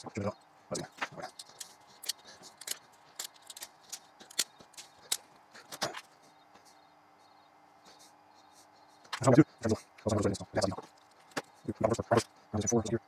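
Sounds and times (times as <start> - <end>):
small hard parts clicking: 0.8 - 6.1.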